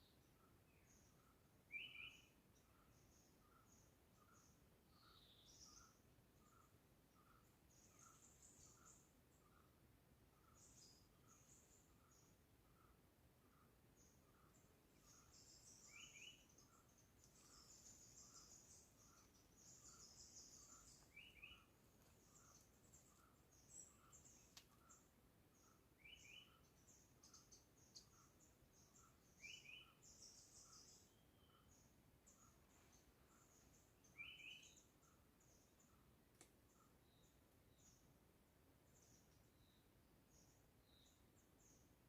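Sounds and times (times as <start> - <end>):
birds twittering: 0.0 - 38.1.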